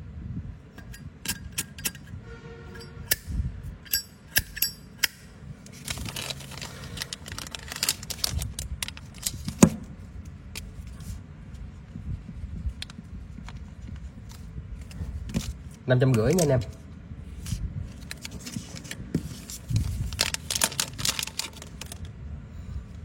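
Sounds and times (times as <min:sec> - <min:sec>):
metallic clinks: 0:03.8 - 0:04.9.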